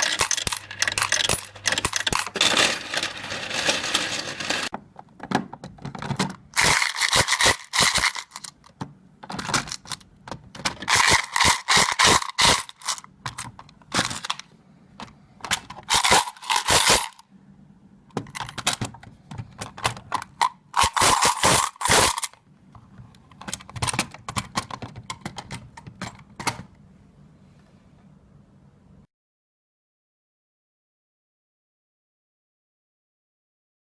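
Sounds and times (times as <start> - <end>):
coins clinking in counting machine: 0.0 - 4.7, 6.6 - 8.6, 10.8 - 13.4, 14.0 - 14.4, 15.8 - 17.2, 20.8 - 22.4.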